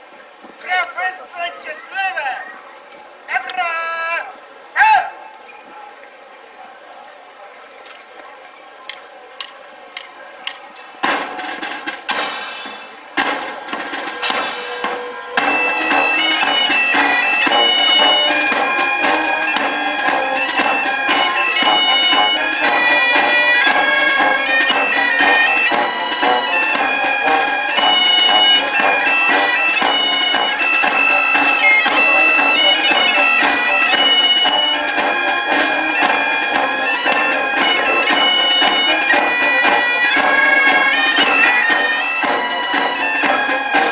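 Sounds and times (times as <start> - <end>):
irregular noisy bursts: 8.8 - 43.9
bagpipes playing: 13.6 - 43.9.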